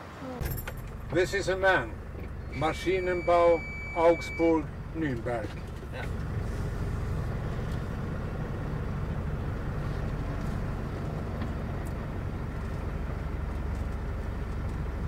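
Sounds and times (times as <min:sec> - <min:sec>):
truck diesel engine idling: 0:00.0 - 0:15.0.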